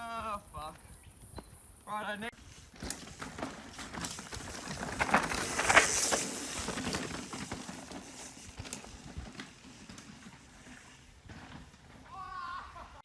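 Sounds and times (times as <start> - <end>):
bike tyres crunching on dirt: 0.3 - 13.0
bike chain and frame rattling: 2.4 - 12.2.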